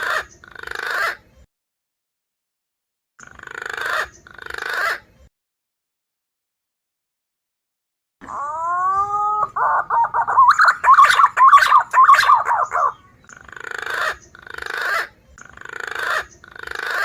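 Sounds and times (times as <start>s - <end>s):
rasping growling bird notes: 8.2s - 14.8s
pigeon whistling calls: 8.4s - 13.0s.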